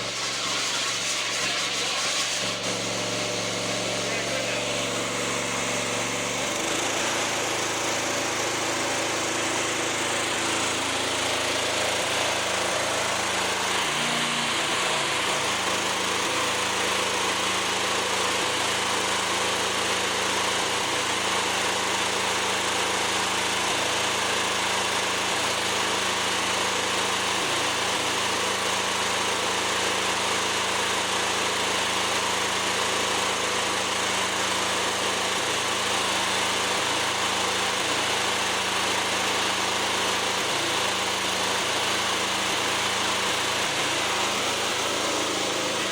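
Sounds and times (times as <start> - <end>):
lawn mower engine idling: 0.0 - 45.9.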